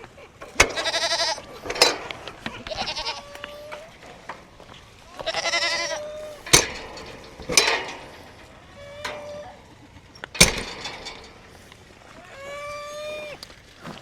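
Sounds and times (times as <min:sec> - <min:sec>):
goats bleating: 0:00.0 - 0:14.0
sharp knocks: 0:06.4 - 0:11.7.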